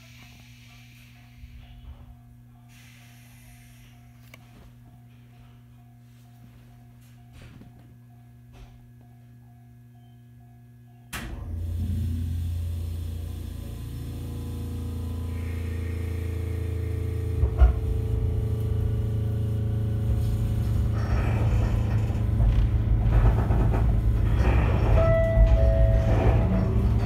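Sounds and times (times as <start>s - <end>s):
train equipment hum: 0.0s - 27.0s
train rumble and wheel clatter: 11.3s - 27.0s.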